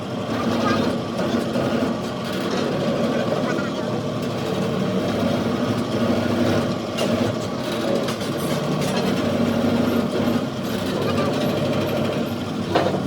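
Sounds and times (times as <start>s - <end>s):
heavy machinery humming: 0.0s - 13.0s.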